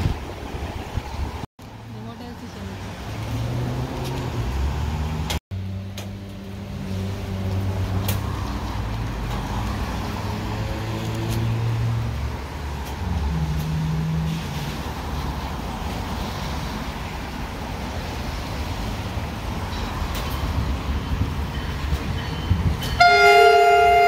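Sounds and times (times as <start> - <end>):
distant train rumble: 0.0 - 1.4, 6.3 - 24.0.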